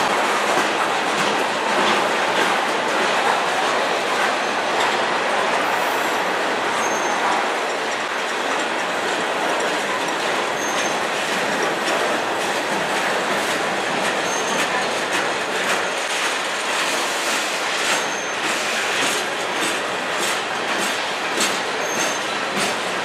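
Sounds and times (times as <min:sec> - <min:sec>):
train wheels on rail: 0:00.0 - 0:23.0
rail joint clicks: 0:06.6 - 0:23.0
high wheel squeal: 0:06.8 - 0:07.2.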